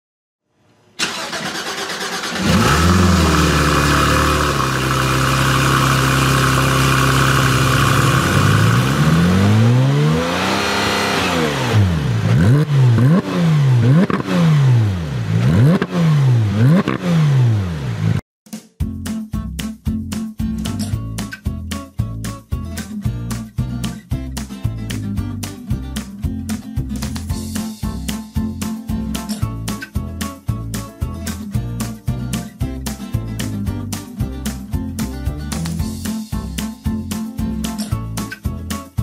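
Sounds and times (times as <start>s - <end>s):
car engine revving: 1.0s - 18.2s
car engine starting and idling: 1.0s - 18.2s.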